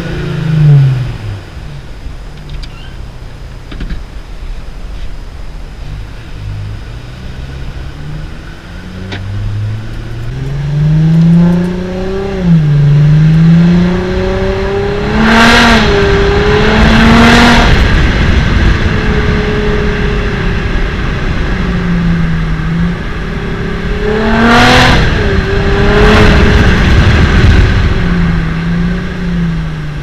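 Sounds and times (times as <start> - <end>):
diesel engine accelerating hard: 0.0 - 30.0
loud rushing noise: 6.9 - 30.0.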